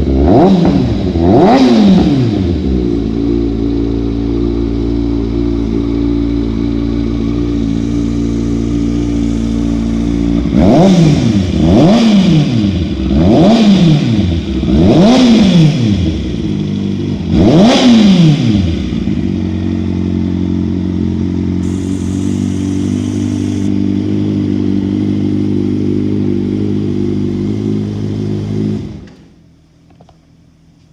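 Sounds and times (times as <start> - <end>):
motorcycle engine revving: 0.0 - 29.0
motorcycle engine idling: 2.6 - 13.2, 18.6 - 28.8.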